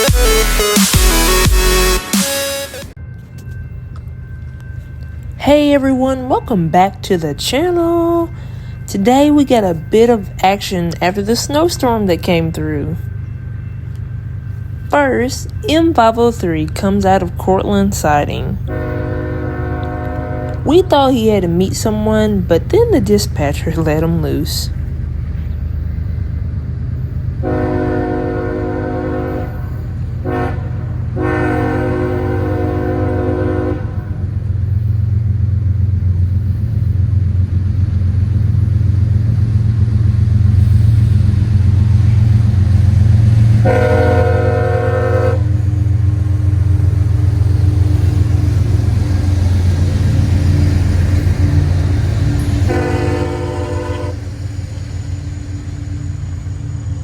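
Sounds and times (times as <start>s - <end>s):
locomotive engines rumbling: 0.0s - 57.0s
multi-chime train air horn: 18.6s - 20.9s, 27.4s - 34.3s, 43.6s - 45.6s, 52.6s - 54.3s.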